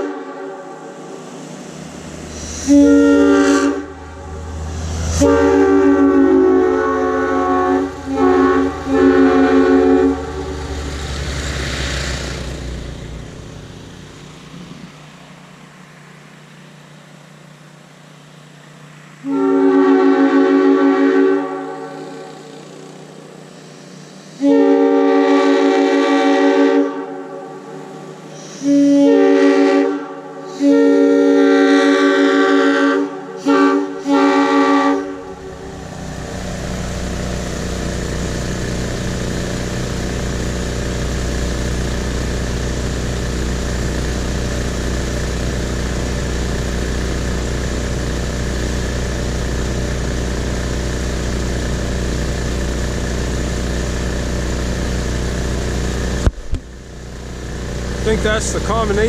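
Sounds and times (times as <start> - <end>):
air horn chord blasts: 0.0 - 10.9, 19.2 - 23.0, 24.3 - 38.8
low rumble: 1.2 - 15.2, 35.0 - 39.7.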